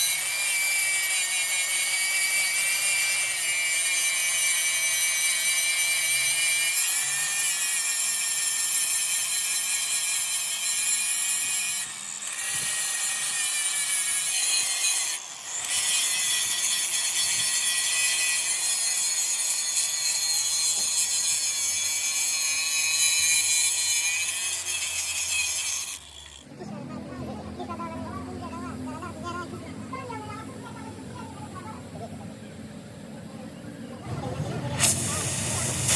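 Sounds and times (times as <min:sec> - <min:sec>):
angle grinder grinding steel: 0:00.0 - 0:26.5, 0:34.6 - 0:35.9.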